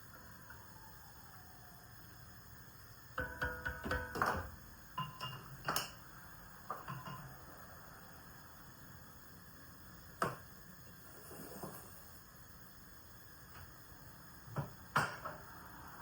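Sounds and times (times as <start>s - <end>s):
faint steady hiss: 0.0s - 16.0s
kitchen items knocking: 3.2s - 5.9s.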